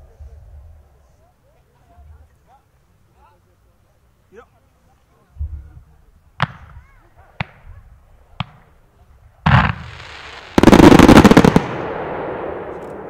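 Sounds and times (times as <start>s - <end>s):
fireworks bangs: 6.4s - 6.8s, 9.4s - 13.0s
fireworks crackle: 9.5s - 13.0s
fireworks whoosh and hiss: 9.5s - 13.0s
rapid volley of sharp cracks: 9.5s - 13.0s.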